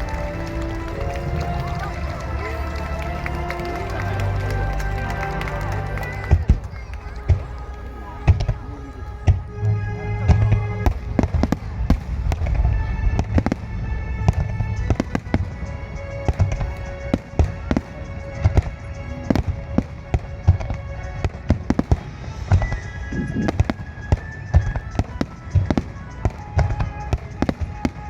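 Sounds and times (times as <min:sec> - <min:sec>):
music: 0:00.0 - 0:28.0.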